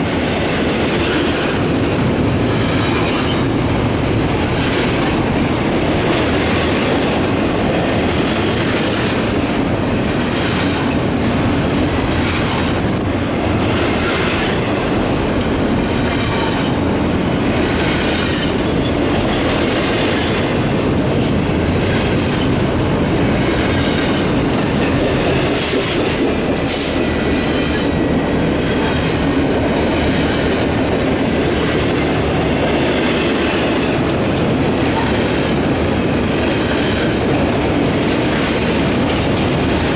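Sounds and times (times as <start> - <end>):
faint wheel squeal: 0.0 - 1.4
freight train wheels clicking: 0.0 - 39.9.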